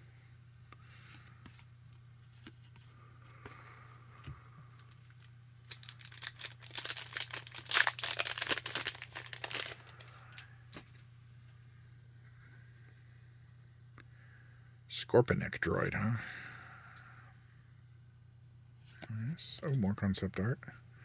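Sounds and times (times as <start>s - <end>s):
card pack wrapper tearing: 5.1s - 11.0s.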